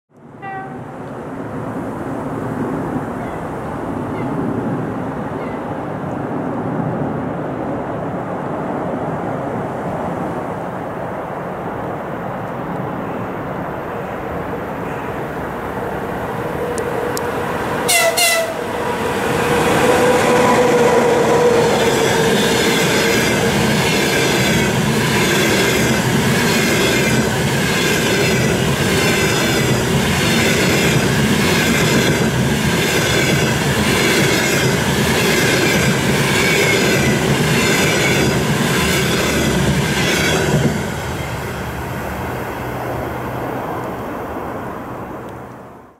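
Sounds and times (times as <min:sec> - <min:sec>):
train rumble: 0:00.2 - 0:45.9
locomotive horn blast: 0:00.4 - 0:00.9, 0:17.0 - 0:20.7
locomotive whine: 0:14.4 - 0:45.8.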